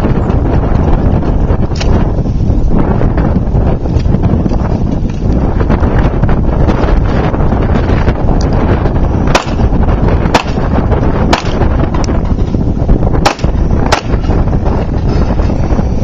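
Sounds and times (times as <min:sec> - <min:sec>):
wind buffeting microphone: 0:00.0 - 0:16.0
gunshots: 0:09.3 - 0:09.7, 0:10.3 - 0:10.7, 0:11.3 - 0:11.7, 0:13.2 - 0:14.4.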